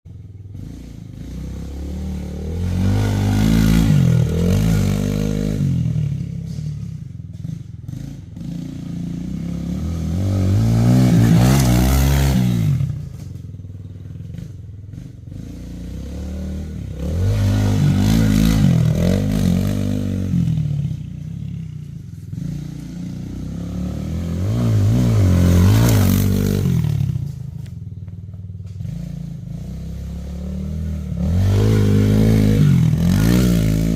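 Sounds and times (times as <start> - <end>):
pit bike engine revving: 0.4 - 33.9.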